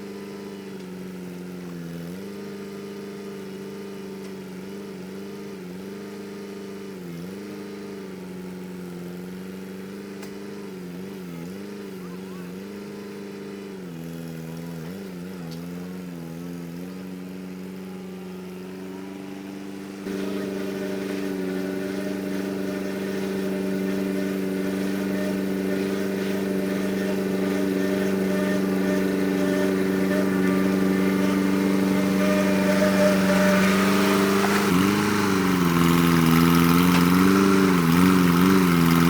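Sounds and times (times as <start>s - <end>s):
loader engine running: 14.0s - 39.0s.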